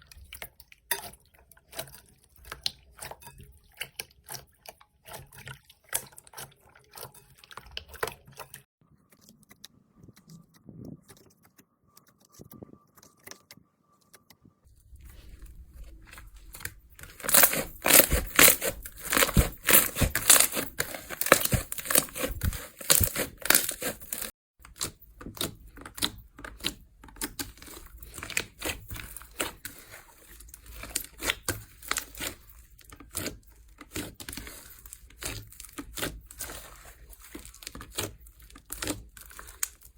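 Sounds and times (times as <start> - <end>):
slime crackling and popping: 15.1 - 24.3, 33.1 - 39.9.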